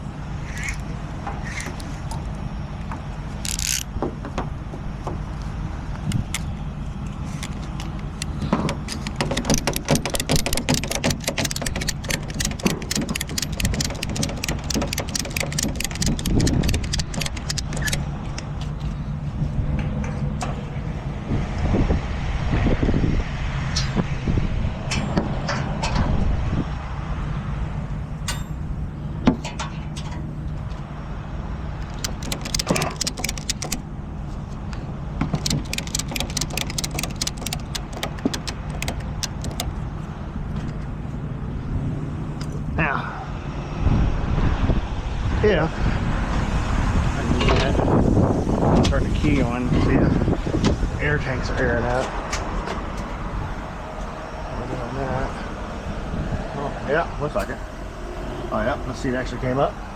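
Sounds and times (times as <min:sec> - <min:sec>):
rapid metallic clicking: 0:08.0 - 0:18.5, 0:31.8 - 0:33.8, 0:35.4 - 0:39.8.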